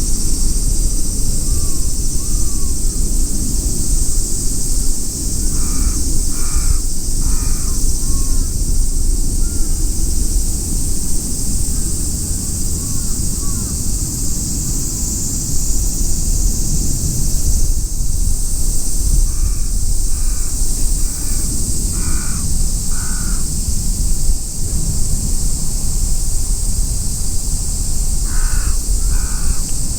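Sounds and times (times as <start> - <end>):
wind rumble on microphone: 0.0 - 29.9
crow cawing: 5.5 - 8.5, 19.3 - 23.5, 28.2 - 29.7.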